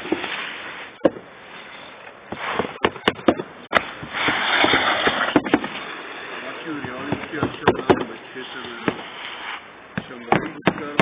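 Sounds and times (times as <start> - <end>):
rustling noise: 0.0 - 2.8, 3.7 - 7.1, 8.1 - 9.8.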